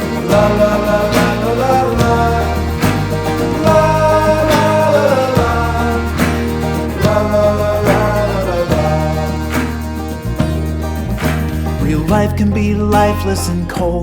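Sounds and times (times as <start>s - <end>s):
upbeat acoustic guitar song: 0.0s - 14.0s.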